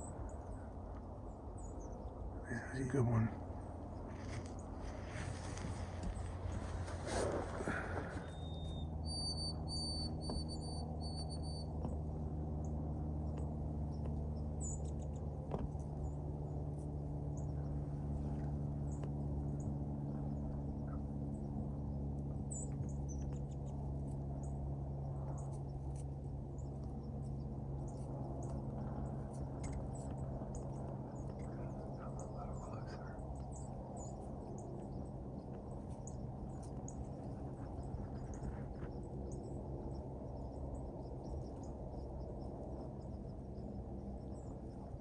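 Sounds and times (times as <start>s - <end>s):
steady low hum: 0.0s - 45.0s
faint bird chirps: 3.9s - 11.9s, 26.6s - 45.0s.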